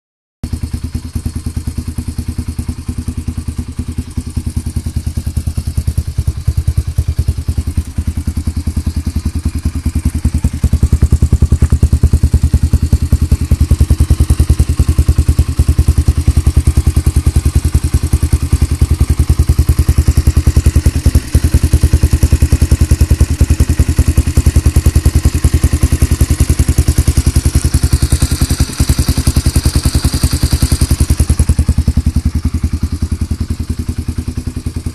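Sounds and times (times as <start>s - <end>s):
motorcycle engine idling: 0.4s - 34.9s.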